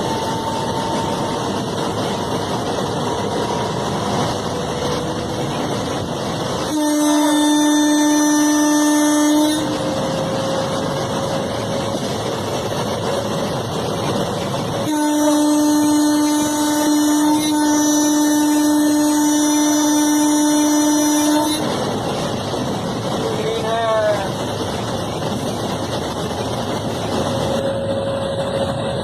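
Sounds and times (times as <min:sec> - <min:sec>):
train horn blasts: 0:00.0 - 0:12.0, 0:14.8 - 0:21.8
train running noise: 0:00.0 - 0:29.0.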